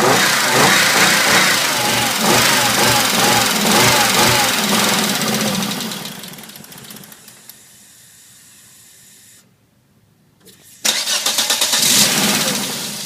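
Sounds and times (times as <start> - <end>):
car engine idling roughly: 0.0 - 7.3
engine running down: 0.0 - 7.4.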